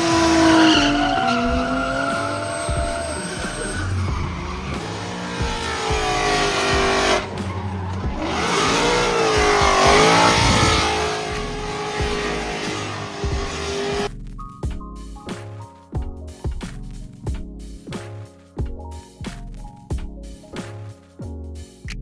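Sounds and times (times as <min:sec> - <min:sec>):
car engine revving: 0:00.0 - 0:14.1
tyres squealing: 0:00.0 - 0:14.1
music: 0:00.0 - 0:22.0.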